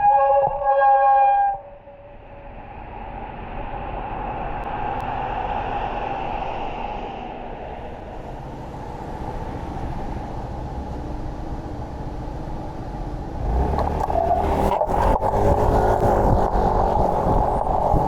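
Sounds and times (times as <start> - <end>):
wind: 0.0 - 18.0
car traffic rumble: 1.9 - 18.0
vehicle passing close: 13.4 - 18.0.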